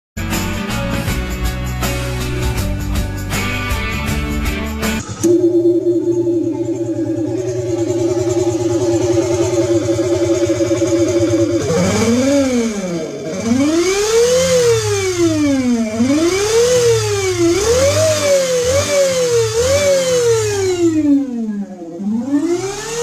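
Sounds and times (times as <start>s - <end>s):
simulated motorcycle engine revving: 5.0s - 23.0s.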